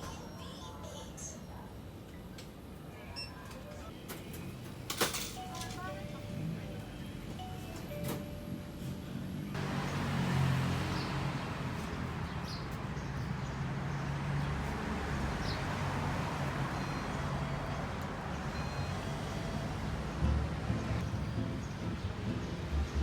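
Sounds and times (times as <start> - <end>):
vehicle engine hum: 3.9 - 23.0
rushing road noise: 6.3 - 23.0.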